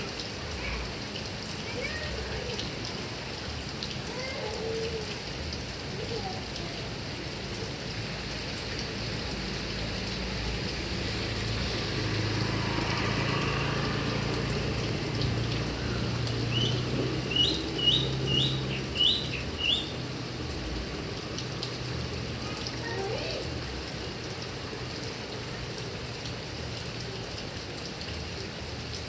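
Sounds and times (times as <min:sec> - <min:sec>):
heavy rain on grass and trees: 0:00.0 - 0:29.0.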